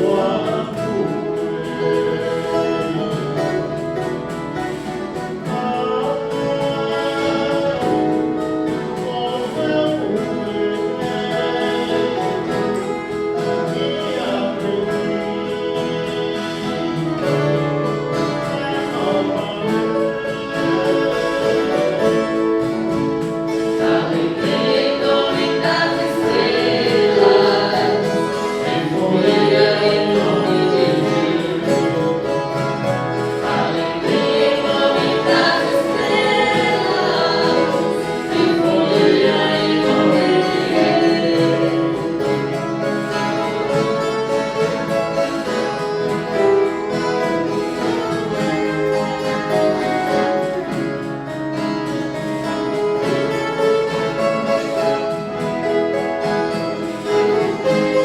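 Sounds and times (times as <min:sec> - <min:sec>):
choir singing: 0:00.0 - 0:50.7
guitar ensemble: 0:00.0 - 0:58.0.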